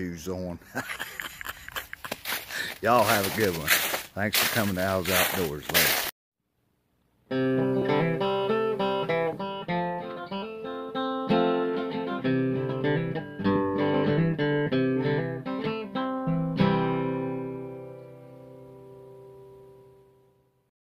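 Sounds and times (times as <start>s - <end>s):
fingerpicked acoustic guitar: 7.3s - 20.3s.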